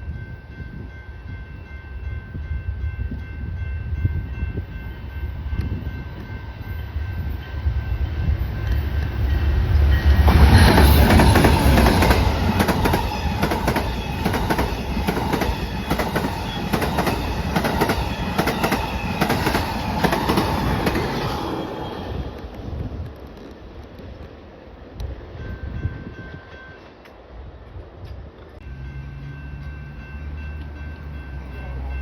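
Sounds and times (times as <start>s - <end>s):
train rumble: 0.0s - 32.0s
train wheels clicking on rails: 5.4s - 24.4s.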